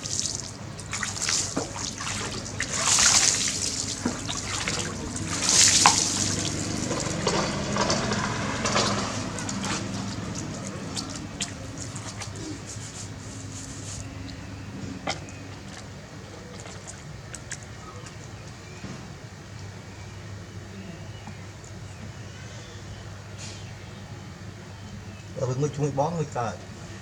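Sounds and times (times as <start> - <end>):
water pouring: 0.0 - 14.5
bath water splashing: 0.0 - 18.4.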